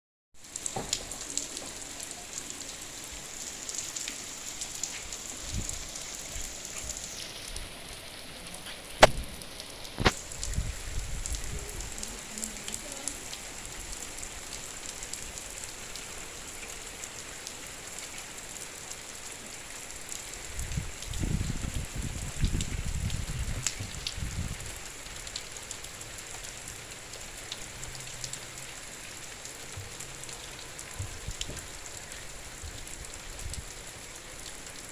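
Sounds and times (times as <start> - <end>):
heavy rain falling: 0.4 - 34.9
sharp knocks: 9.0 - 9.3.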